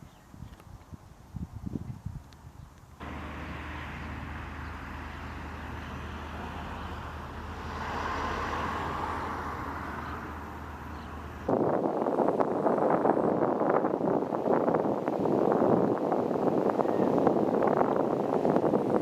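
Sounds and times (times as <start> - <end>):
vehicle engine running: 3.0 - 11.5.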